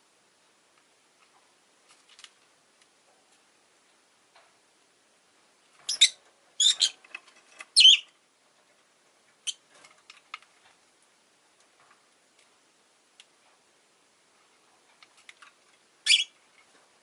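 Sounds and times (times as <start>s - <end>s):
lovebird chirping: 5.9s - 7.0s, 7.8s - 8.1s, 16.0s - 16.4s.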